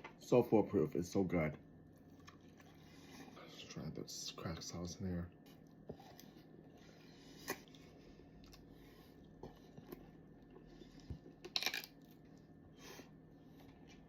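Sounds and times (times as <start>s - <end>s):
person chewing crunchy food: 2.0s - 3.3s, 5.6s - 14.0s.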